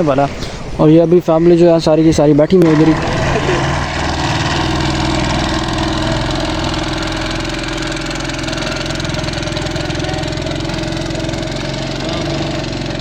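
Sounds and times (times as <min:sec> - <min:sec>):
rushing floodwater: 0:00.0 - 0:13.0
engine humming steadily: 0:02.6 - 0:13.0.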